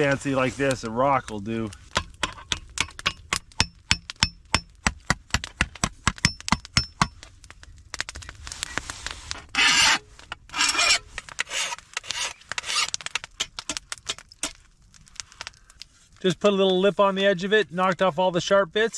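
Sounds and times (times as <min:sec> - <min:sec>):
rasping scrapes on metal: 0:09.5 - 0:13.0.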